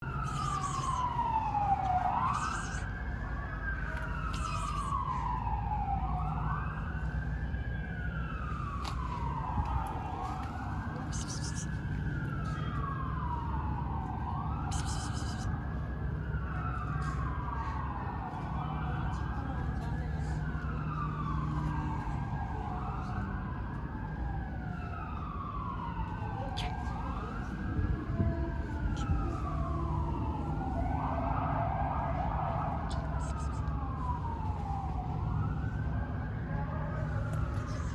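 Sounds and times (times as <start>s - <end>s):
emergency siren wailing: 0.0s - 37.9s
low traffic rumble: 0.0s - 37.9s.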